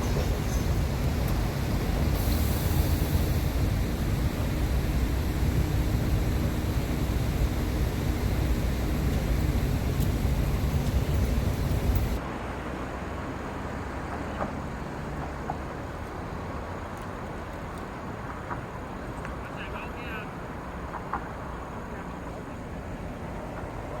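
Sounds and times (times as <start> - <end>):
large vehicle engine rumbling: 0.0 - 12.2.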